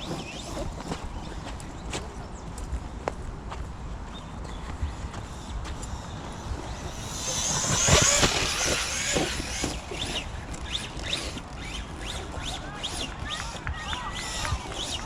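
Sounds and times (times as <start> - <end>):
electric motor whining: 5.4 - 15.0
tyres rushing over ground: 6.6 - 15.0.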